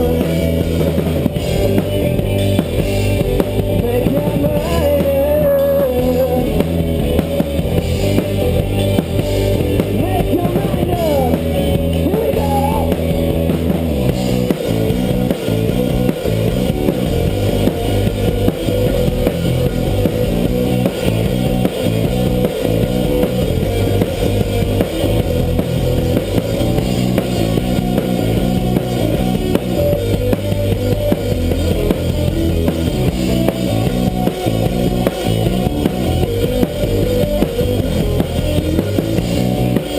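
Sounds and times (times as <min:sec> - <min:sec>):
bass guitar: 0:00.0 - 0:39.9
drum kit steady beat: 0:00.0 - 0:39.9
electric guitar: 0:00.0 - 0:39.9.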